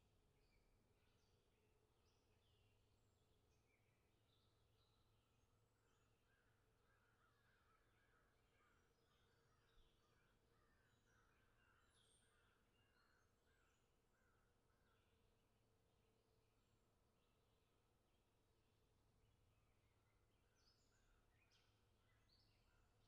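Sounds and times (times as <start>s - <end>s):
faint birdsong chirps: 0.0s - 23.0s.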